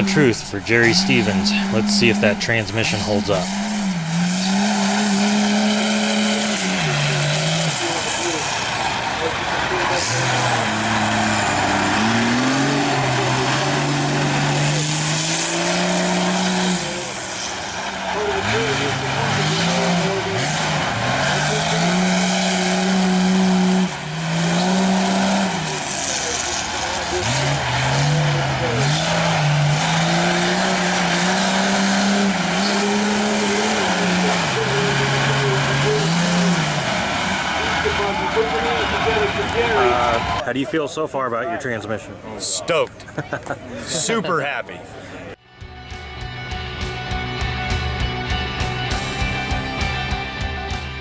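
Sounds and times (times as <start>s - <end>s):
diesel engine running hard: 0.0s - 40.4s.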